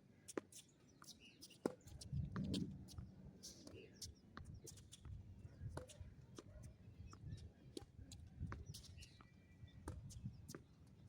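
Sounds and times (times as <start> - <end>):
wind rumble on microphone: 2.0 - 3.2, 8.1 - 10.5.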